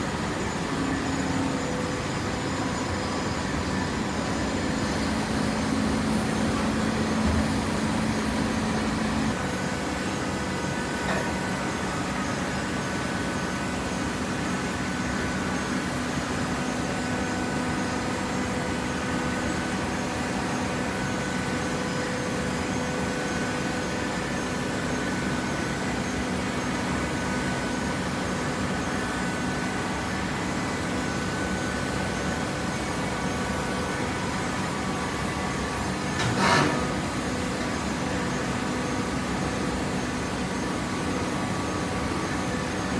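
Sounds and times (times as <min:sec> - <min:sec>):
baler machine hum: 0:00.0 - 0:13.3, 0:32.7 - 0:42.9.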